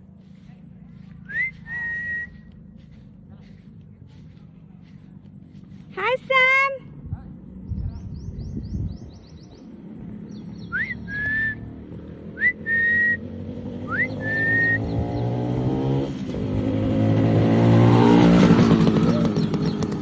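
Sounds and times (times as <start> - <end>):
motorcycle engine revving: 0.0 - 6.0, 6.8 - 20.0
whistled upward sweeping notes: 10.5 - 11.7, 12.4 - 13.2, 13.8 - 15.2.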